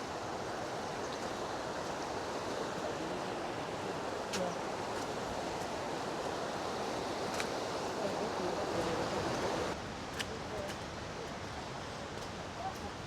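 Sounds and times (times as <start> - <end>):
river water rushing: 0.0 - 9.8.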